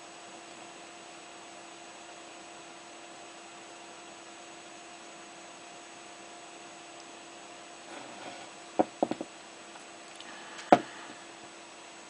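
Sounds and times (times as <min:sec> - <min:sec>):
sharp knocks: 0:08.8 - 0:09.3.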